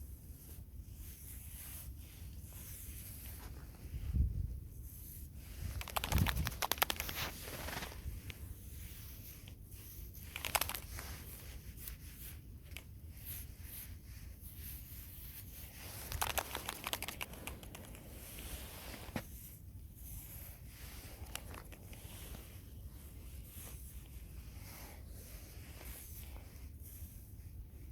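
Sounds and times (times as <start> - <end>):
crinkling rustles: 5.4 - 12.9, 14.8 - 26.7
small clicks: 5.7 - 8.4, 10.2 - 11.0, 12.7 - 12.9, 16.0 - 18.0.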